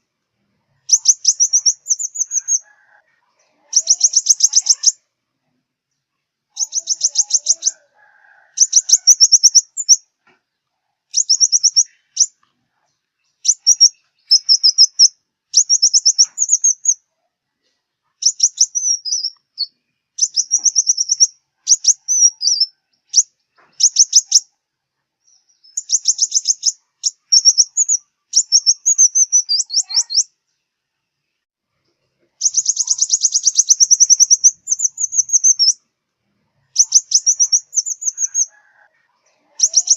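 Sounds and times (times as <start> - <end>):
bird trilling song: 0.7 - 5.0, 6.5 - 7.8, 8.6 - 10.1, 11.1 - 12.5, 13.2 - 17.1, 18.2 - 24.5, 25.2 - 30.4, 32.4 - 35.8, 36.6 - 39.9.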